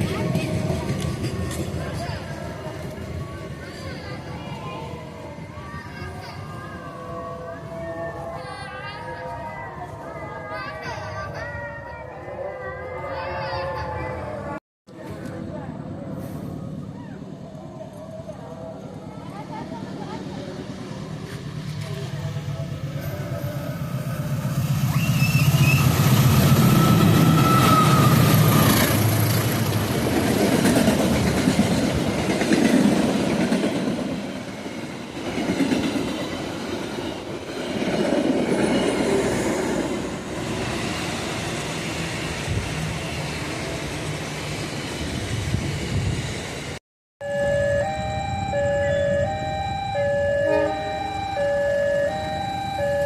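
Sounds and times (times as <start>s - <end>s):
train carriages rumbling and clattering: 0.0s - 6.7s, 19.6s - 46.8s
diesel locomotive engine passing: 0.0s - 53.0s.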